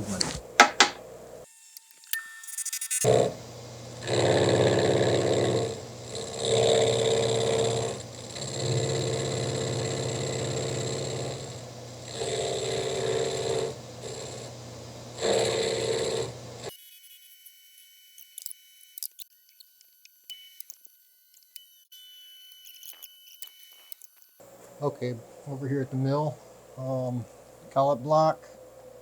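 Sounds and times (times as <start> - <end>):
machine tool motor humming: 0.0 - 16.7.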